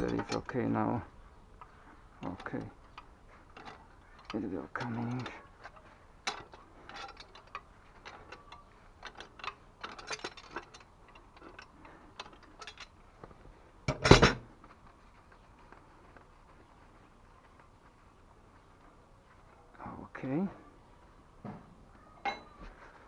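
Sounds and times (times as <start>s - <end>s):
light clicks and taps of tools: 0.0s - 0.8s, 1.6s - 19.7s.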